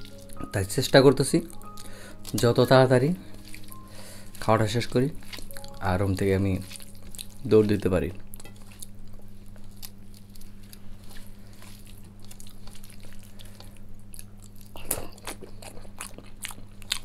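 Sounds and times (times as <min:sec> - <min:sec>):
steady low hum: 0:00.0 - 0:17.0
wet chewing and mouth smacks: 0:06.6 - 0:07.5, 0:08.3 - 0:17.0.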